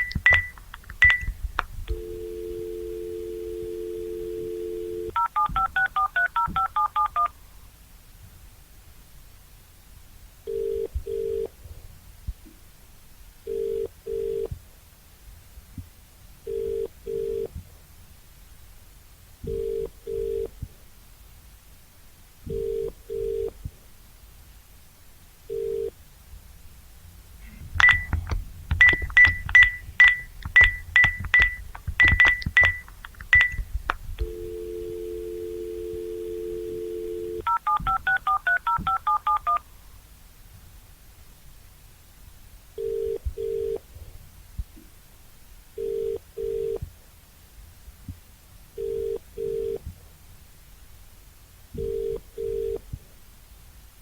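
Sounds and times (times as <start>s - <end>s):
touch-tone keypad dialing: 0.0s - 1.3s, 1.9s - 7.3s, 27.8s - 33.6s, 36.9s - 39.6s
clicks with high beeps: 0.0s - 2.0s, 27.8s - 33.6s, 37.4s - 39.6s
telephone dial tone: 1.9s - 7.3s, 28.8s - 33.6s, 34.2s - 39.6s
telephone ringback tone: 1.9s - 7.3s, 28.8s - 33.6s, 34.2s - 39.6s.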